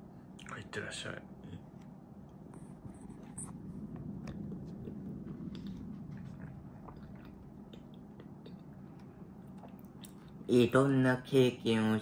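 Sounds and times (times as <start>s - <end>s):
steady low hum: 0.0s - 12.0s
person chewing: 4.1s - 10.5s.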